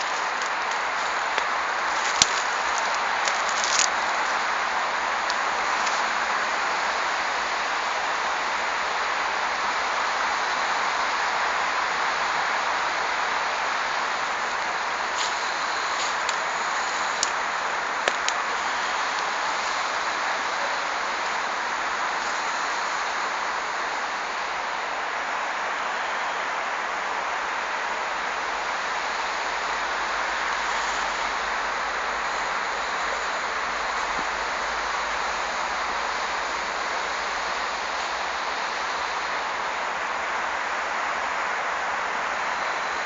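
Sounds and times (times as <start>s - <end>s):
outdoor rushing hiss: 0.0s - 43.0s.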